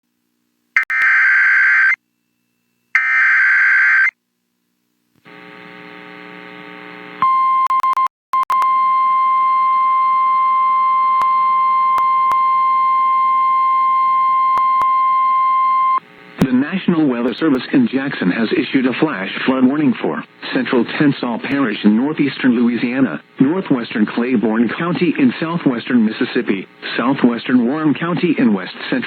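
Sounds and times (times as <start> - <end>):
low buzzing hum: 4.2 - 7.3.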